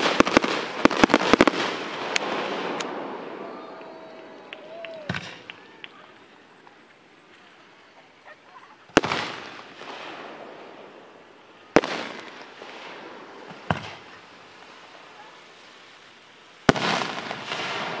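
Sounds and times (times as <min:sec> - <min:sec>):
firework shells bursting: 0:00.0 - 0:07.6.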